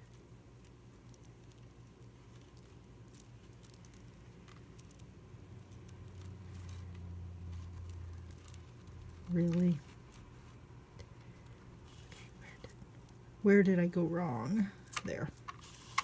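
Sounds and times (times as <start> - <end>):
beads clicking together: 0.0 - 10.3
low steady hum: 0.0 - 16.0.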